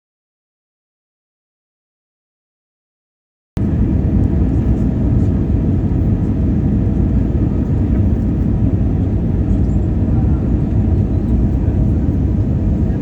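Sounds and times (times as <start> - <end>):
jet airliner cabin noise: 3.6 - 13.0.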